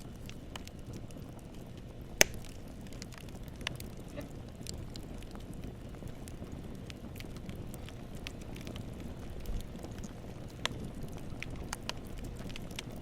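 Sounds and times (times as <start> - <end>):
campfire flames rumbling: 0.0 - 13.0
fire crackling and popping: 0.0 - 13.0.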